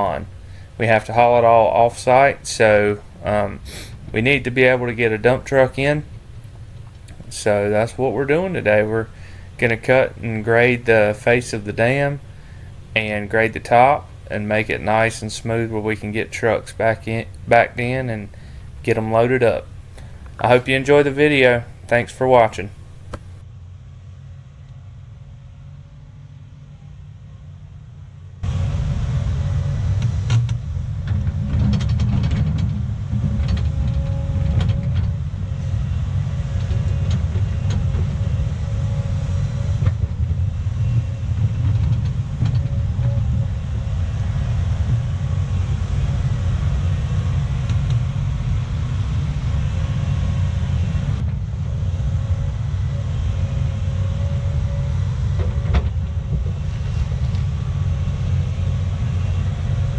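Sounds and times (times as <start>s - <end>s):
diesel engine rumbling: 0.0s - 23.4s, 28.4s - 59.9s
faint steady whine: 0.0s - 23.4s
short knocks: 22.7s - 23.4s.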